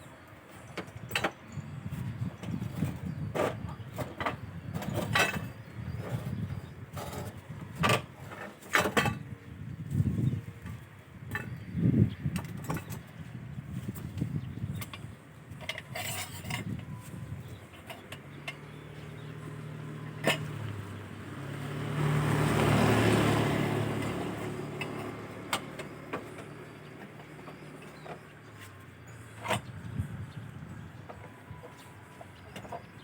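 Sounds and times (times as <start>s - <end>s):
metal tools clinking: 15.6s - 19.2s
motor vehicle engine hum: 16.6s - 33.0s.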